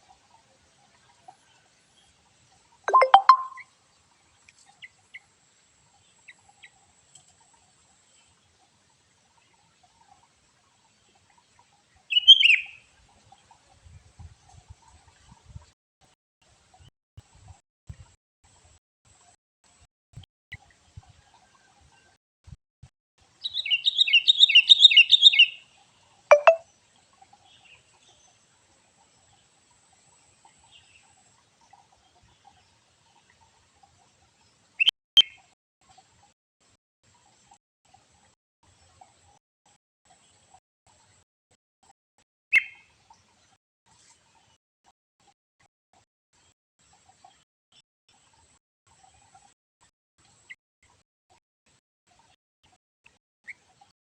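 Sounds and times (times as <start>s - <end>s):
small songbird chirping: 2.9s - 3.6s, 12.1s - 12.9s, 23.4s - 25.6s, 26.3s - 26.6s.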